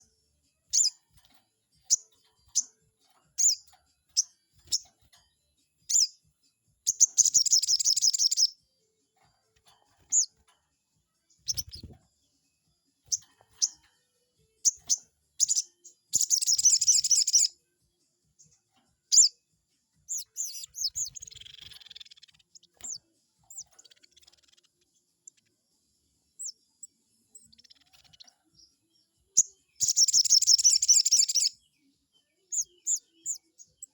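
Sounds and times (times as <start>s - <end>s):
bird chirping: 0.0s - 17.6s, 18.3s - 19.4s, 20.0s - 33.9s
bird rattling trills: 6.9s - 8.5s, 16.2s - 17.5s, 29.8s - 31.5s.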